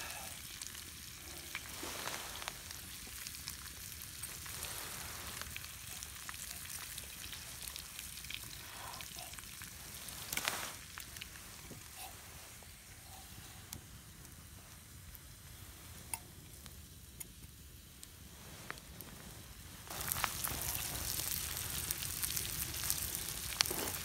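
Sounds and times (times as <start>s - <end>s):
fat popping and crackling: 0.0s - 13.0s, 19.9s - 24.0s
meat sizzling in a pan: 0.0s - 24.0s.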